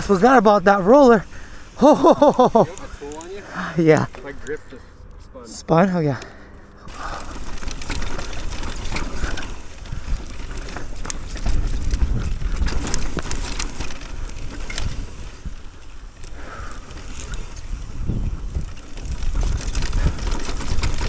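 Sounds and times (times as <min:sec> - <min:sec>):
bike chain and frame clattering: 0:00.0 - 0:21.0
tyres crunching over rocks: 0:00.0 - 0:21.0
wind rumbling on microphone: 0:06.9 - 0:21.0.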